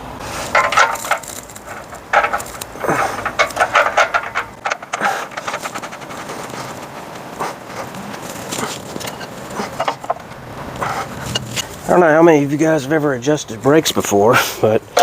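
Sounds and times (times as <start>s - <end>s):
objects clicking and scraping: 0.2s - 11.9s.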